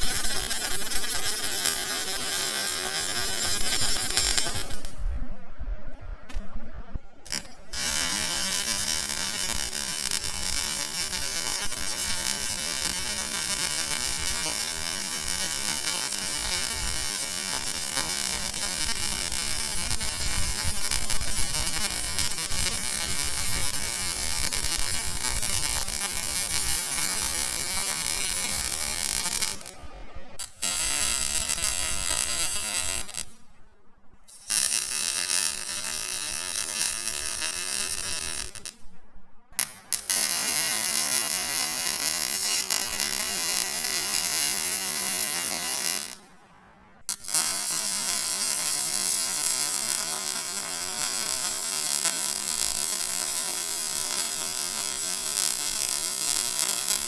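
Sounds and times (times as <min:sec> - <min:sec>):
welding arc buzzing and crackling: 0:00.0 - 0:05.0, 0:07.2 - 0:33.4, 0:34.3 - 0:38.8, 0:39.6 - 0:46.3, 0:47.1 - 0:57.0.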